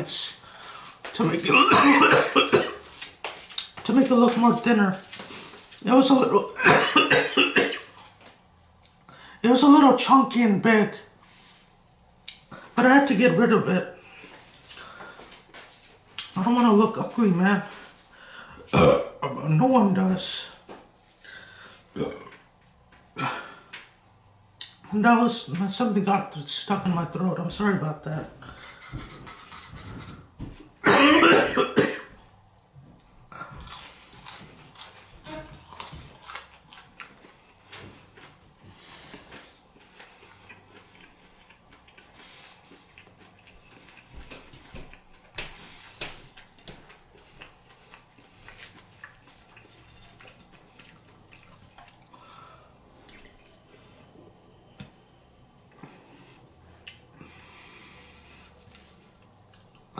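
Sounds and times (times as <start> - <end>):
chewing and mouth smacks: 3.0 - 3.8, 11.7 - 12.6, 33.4 - 38.3, 39.1 - 52.2, 58.4 - 59.9.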